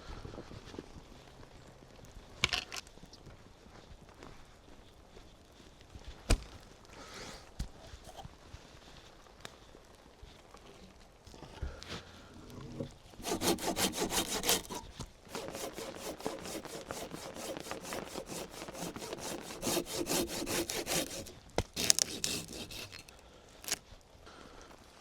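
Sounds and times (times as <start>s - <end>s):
hand saw cutting log: 12.5s - 23.8s.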